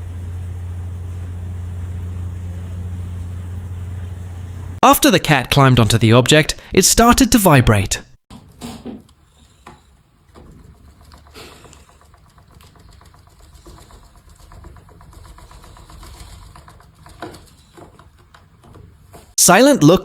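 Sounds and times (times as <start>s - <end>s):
small motor buzz-rattle: 0.0s - 4.8s, 9.2s - 19.4s.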